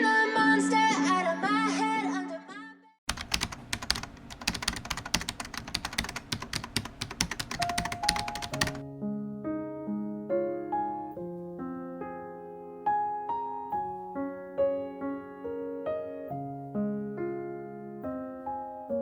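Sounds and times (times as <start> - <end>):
keyboard typing: 3.1 - 8.8
gentle piano tune: 3.2 - 19.0.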